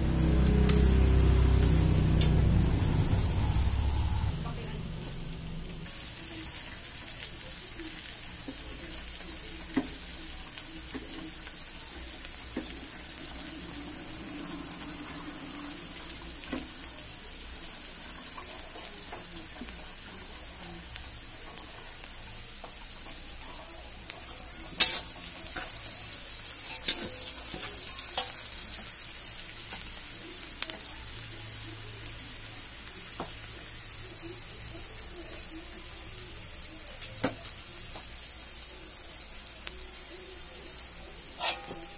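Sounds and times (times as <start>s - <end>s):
onion and garlic sizzling in a wok: 0.0s - 41.9s
metal spatula scraping a pan: 24.8s - 25.7s, 41.2s - 41.9s.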